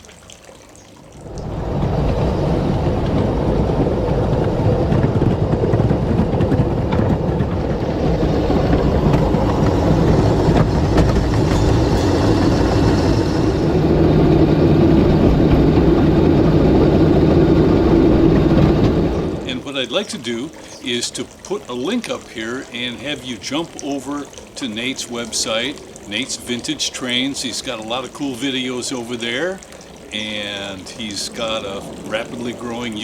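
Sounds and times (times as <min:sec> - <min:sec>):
train wheels clattering on rail: 0:01.4 - 0:19.6.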